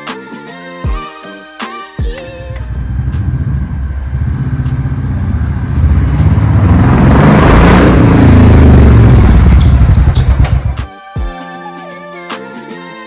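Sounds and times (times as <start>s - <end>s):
vehicle rumble and rush: 2.4s - 10.9s
short high beeps: 9.6s - 10.7s.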